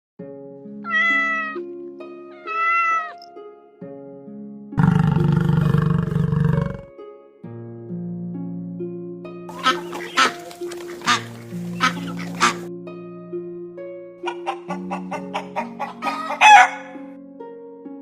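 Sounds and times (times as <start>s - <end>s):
background music with held notes: 0.2s - 18.0s
cat meowing: 0.8s - 1.7s, 2.4s - 3.3s.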